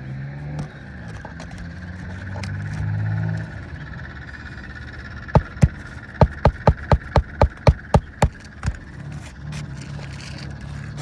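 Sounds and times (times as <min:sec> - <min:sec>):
hammer striking nail: 0:05.4 - 0:08.8.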